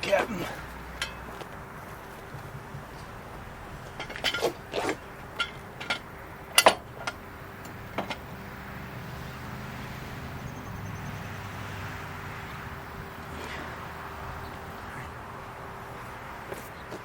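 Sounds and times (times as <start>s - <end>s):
low steady rumble: 0.0s - 16.5s
metal clicks and clanks: 0.9s - 8.4s.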